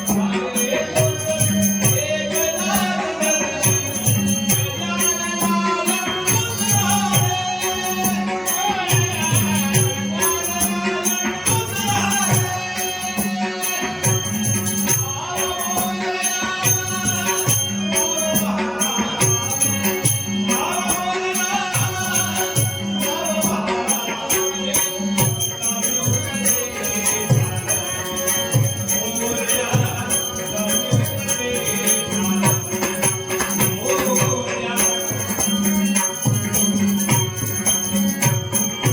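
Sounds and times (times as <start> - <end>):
man singing a hymn: 0.0 - 14.2, 14.9 - 35.8
small cymbals jingling: 0.0 - 38.9.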